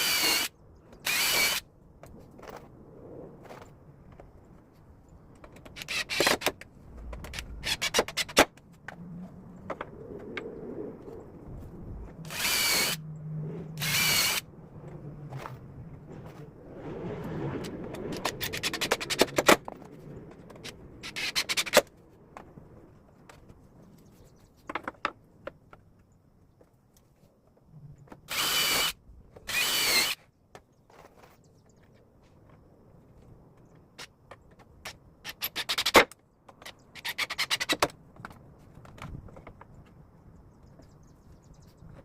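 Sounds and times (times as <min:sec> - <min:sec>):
power drill whine: 0:00.0 - 0:01.6, 0:12.3 - 0:13.0, 0:13.8 - 0:14.4, 0:28.3 - 0:30.2.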